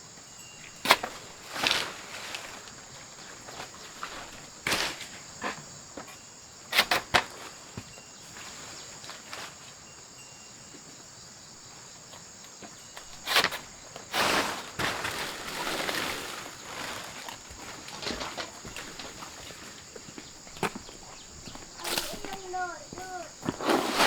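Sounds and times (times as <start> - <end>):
insects droning: 0.0 - 24.0
scuffs and knocks: 12.2 - 24.0.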